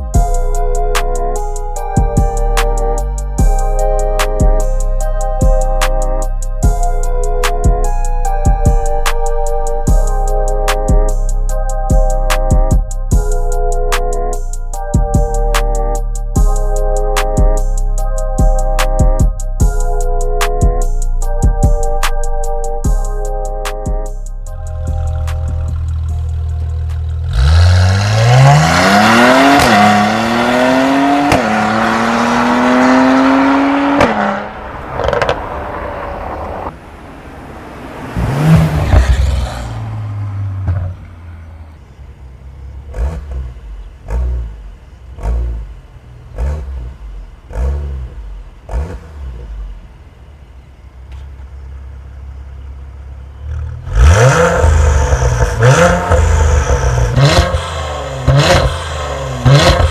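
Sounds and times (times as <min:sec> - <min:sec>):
car engine accelerating: 0:00.0 - 0:59.9
loud engine revving: 0:24.4 - 0:41.7, 0:42.7 - 0:50.0, 0:53.4 - 0:59.9.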